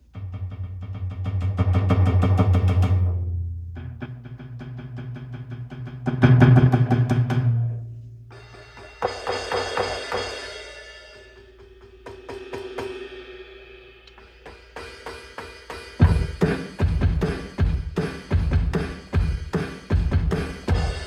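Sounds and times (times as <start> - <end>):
electronic snare and toms: 8.3 - 13.2, 14.1 - 21.0
cymbal wash: 8.3 - 16.7
heavy kick drum hits: 16.0 - 21.0.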